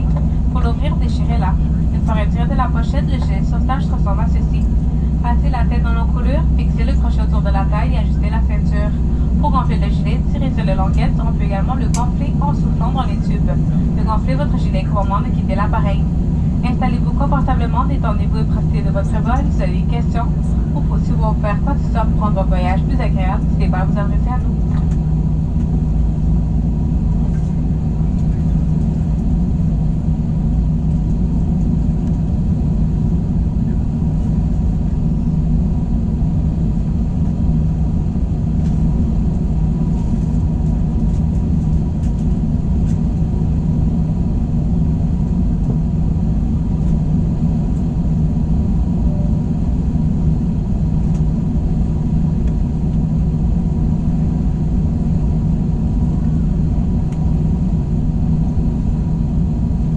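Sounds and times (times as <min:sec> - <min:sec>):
airplane cabin hum and rumble: 0:00.0 - 0:59.9.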